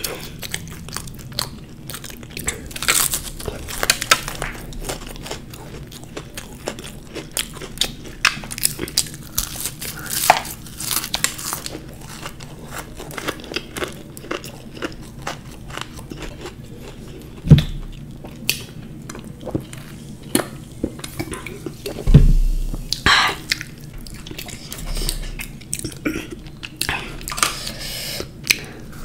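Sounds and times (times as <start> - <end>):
chewing with crunches: 0.0 - 22.0, 22.8 - 29.0
loud low thump: 22.0 - 22.9.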